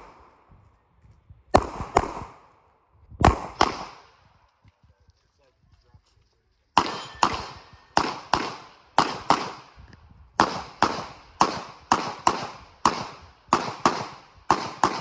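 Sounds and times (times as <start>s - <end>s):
pistol shots with echo: 1.5s - 2.6s, 3.2s - 4.2s, 6.8s - 15.0s.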